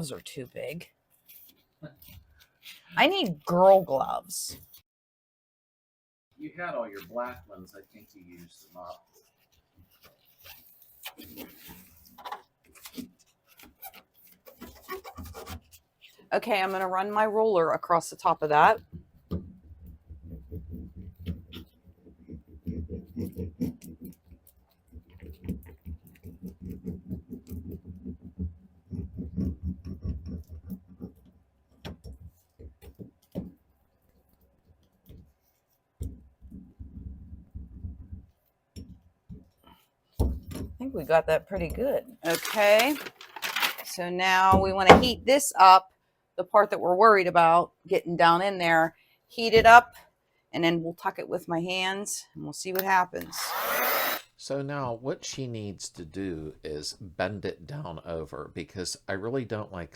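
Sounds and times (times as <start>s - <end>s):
gloved hands crinkling sheet: 42.1s - 44.0s.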